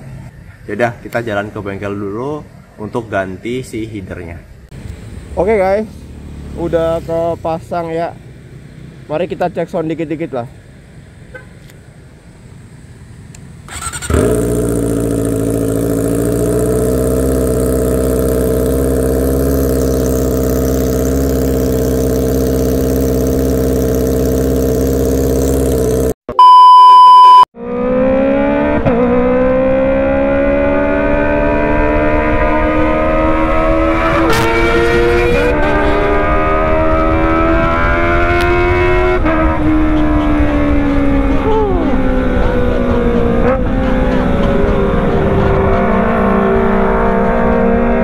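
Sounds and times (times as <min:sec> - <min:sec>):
motorcycle engine running: 0:13.7 - 0:26.2, 0:39.6 - 0:47.9
loud steady beep: 0:26.3 - 0:27.5.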